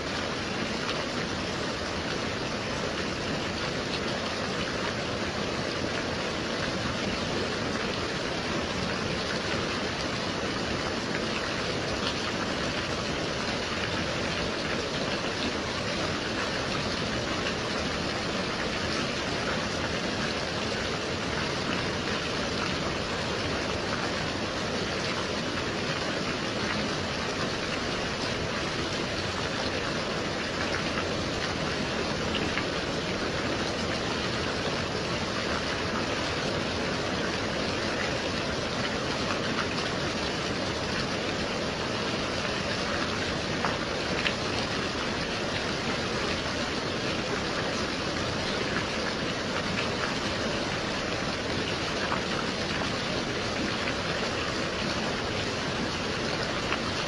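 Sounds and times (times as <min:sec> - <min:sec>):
gentle rain falling: 0:00.0 - 0:57.0.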